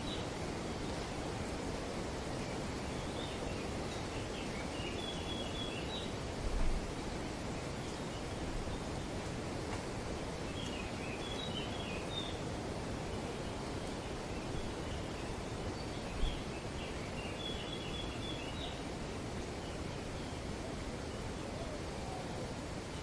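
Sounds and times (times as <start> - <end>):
wind rustling trees: 0.0 - 23.0.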